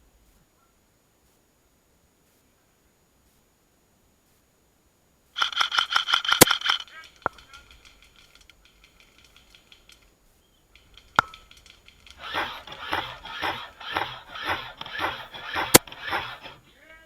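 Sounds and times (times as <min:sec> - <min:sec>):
airsoft gun cracks: 0:05.4 - 0:10.1, 0:10.8 - 0:15.9
rhythmic rustling: 0:10.7 - 0:16.7.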